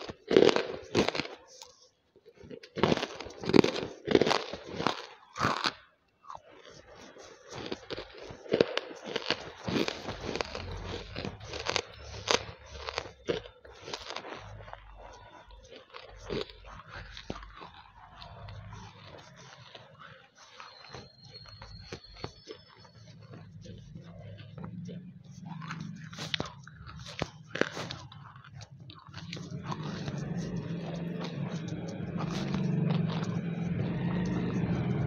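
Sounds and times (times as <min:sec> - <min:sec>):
crunching and chewing in mouth: 0:00.0 - 0:35.0.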